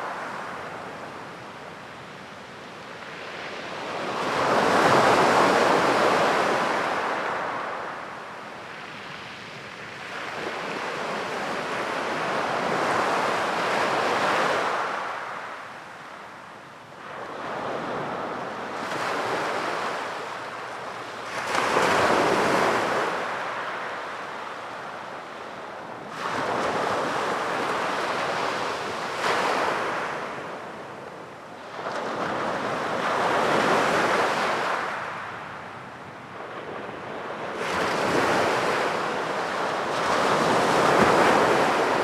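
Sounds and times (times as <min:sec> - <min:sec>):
sea waves breaking on beach: 0:17.0 - 0:24.9, 0:26.0 - 0:30.8, 0:36.6 - 0:42.0.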